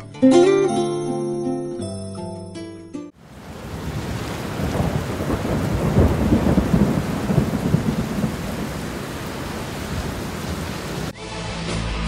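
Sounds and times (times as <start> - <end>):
rain hissing: 3.2 - 11.1
rolling thunder: 3.2 - 11.1.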